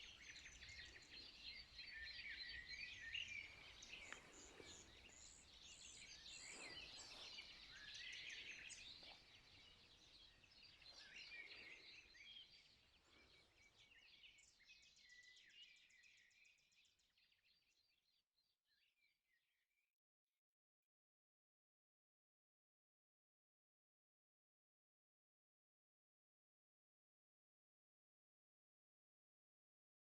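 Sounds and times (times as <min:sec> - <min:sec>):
songbirds chirping and singing: 0:00.0 - 0:19.1.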